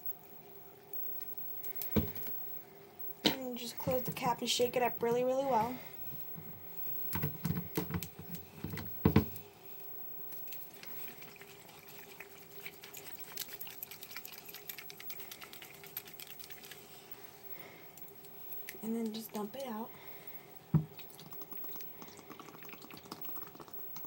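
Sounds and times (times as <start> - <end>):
shaken bottle rattling and sloshing: 10.3 - 17.4.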